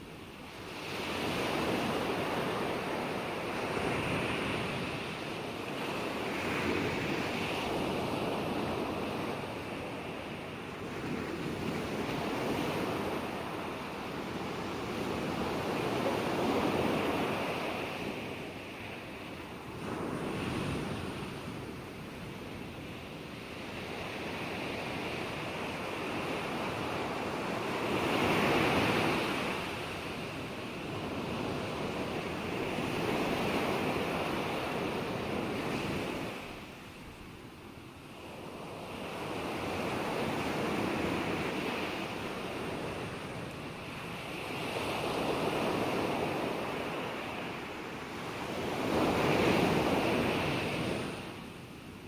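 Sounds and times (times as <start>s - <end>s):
ocean waves washing onto shore: 0.0s - 52.0s
ocean waves breaking: 38.2s - 51.6s.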